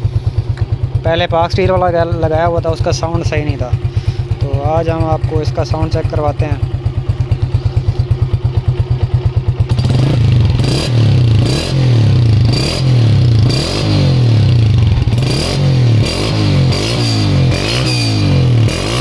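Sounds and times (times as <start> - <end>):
motorcycle engine idling: 0.0 - 19.0
motorcycle engine revving: 0.0 - 19.0.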